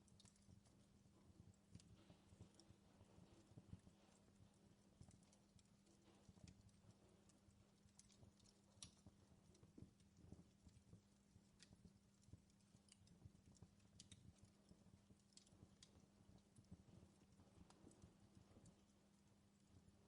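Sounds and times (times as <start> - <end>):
fireplace crackling: 0.0 - 20.0
low steady hum: 0.0 - 20.0.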